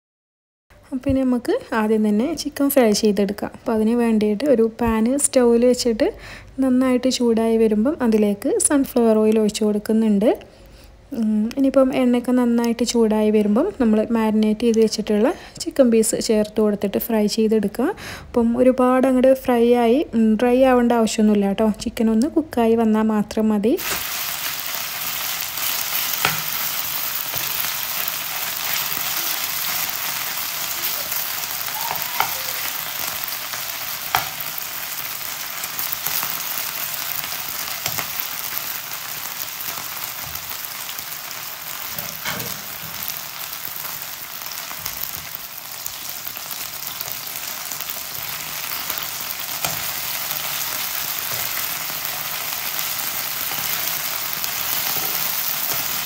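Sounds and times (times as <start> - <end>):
chicken sizzling in oil: 23.8 - 56.0
spoon tapping and scraping pan: 26.0 - 27.7, 33.5 - 34.6, 37.6 - 38.5, 41.9 - 43.2, 48.2 - 51.7.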